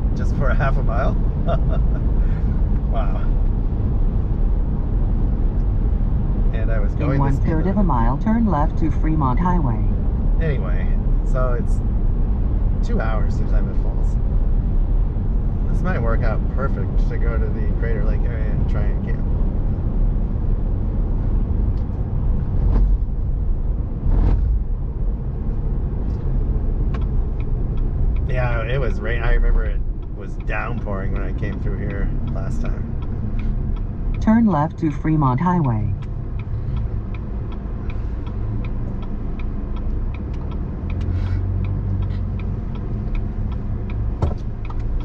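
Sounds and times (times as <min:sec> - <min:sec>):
vehicle cabin road rumble: 0:00.0 - 0:45.0
turn signal ticking: 0:07.0 - 0:10.3, 0:24.8 - 0:45.0.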